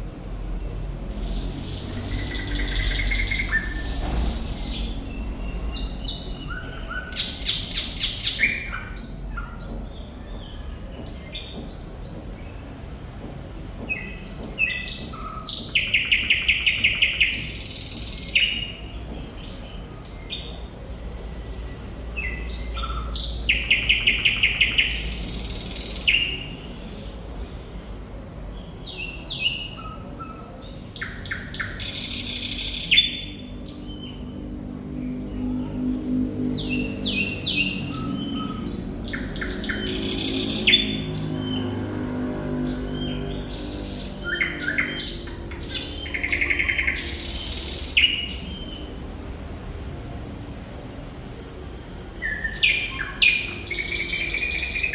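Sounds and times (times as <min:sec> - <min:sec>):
nightingale singing: 0:01.2 - 0:04.0, 0:37.1 - 0:41.6, 0:42.8 - 0:48.8, 0:50.9 - 0:54.9.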